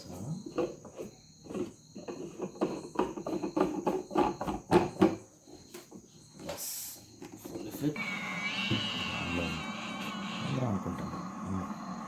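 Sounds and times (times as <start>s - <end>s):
steady high tones: 7.7s - 12.0s.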